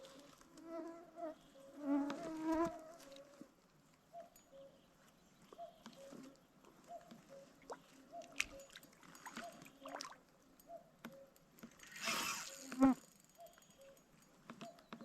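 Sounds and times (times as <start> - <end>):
fly buzzing: 11.9 - 13.0.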